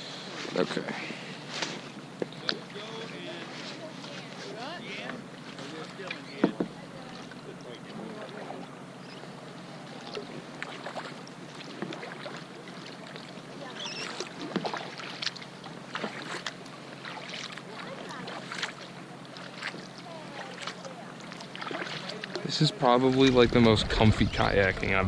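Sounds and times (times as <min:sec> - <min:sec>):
paddle splashing in water: 0:00.0 - 0:24.5.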